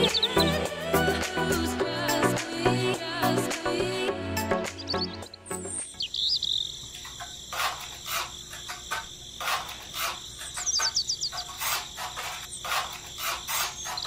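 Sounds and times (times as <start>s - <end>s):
steady high background tone: 0.0s - 7.4s
high chirps: 0.0s - 9.3s, 10.0s - 14.0s
trowel scraping wet cement: 7.5s - 14.0s.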